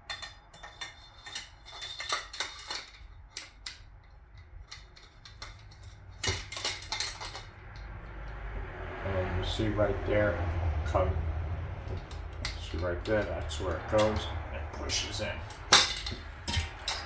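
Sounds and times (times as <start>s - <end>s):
light metal clinks and taps: 0.0s - 8.4s, 11.9s - 17.0s.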